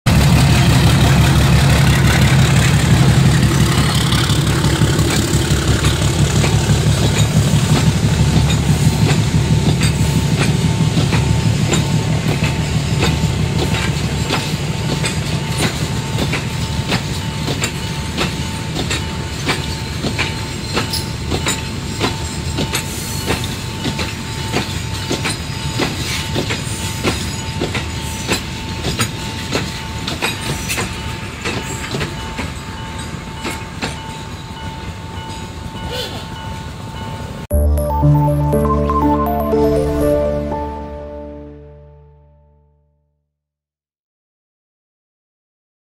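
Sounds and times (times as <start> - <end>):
goods train rumbling past: 0.1 - 25.1
wheels clacking over rail joints: 0.6 - 34.2
steady high tone: 37.5 - 42.8.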